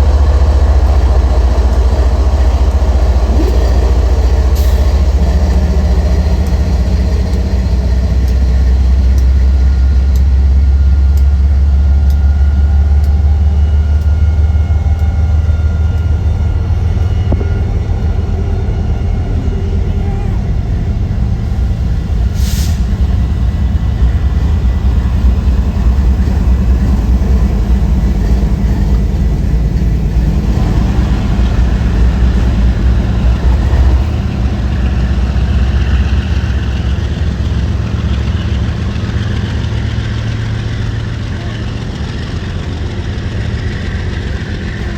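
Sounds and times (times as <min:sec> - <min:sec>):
train rumbling past: 0:00.0 - 0:44.9
short sharp hiss: 0:22.4 - 0:22.9.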